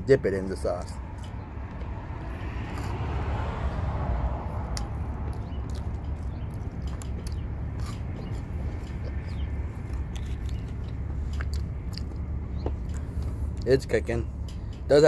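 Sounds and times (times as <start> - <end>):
person chewing: 2.7 - 3.0, 4.6 - 13.6.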